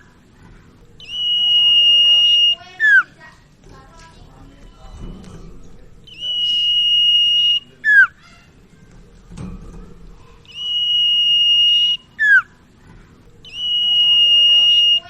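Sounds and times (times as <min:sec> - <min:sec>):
bird singing whistled phrase: 0:01.0 - 0:03.1, 0:06.1 - 0:08.2, 0:10.5 - 0:12.5, 0:13.4 - 0:15.0.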